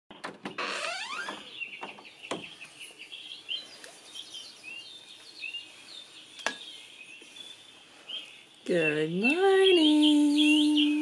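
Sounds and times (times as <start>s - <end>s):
songbirds chirping: 0.1s - 11.0s.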